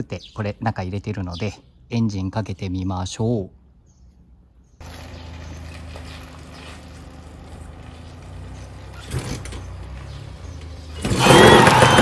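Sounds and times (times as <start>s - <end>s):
motorcycle engine running: 4.8s - 12.0s.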